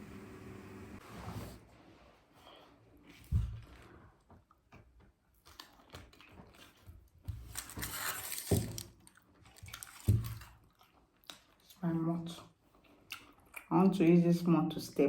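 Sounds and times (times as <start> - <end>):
tearing and chewing food: 3.0 - 11.9, 12.5 - 13.7.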